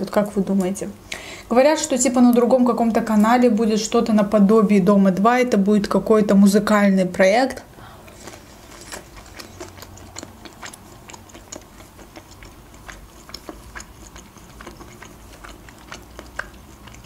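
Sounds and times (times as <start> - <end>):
wet chewing clicks: 8.1 - 17.0.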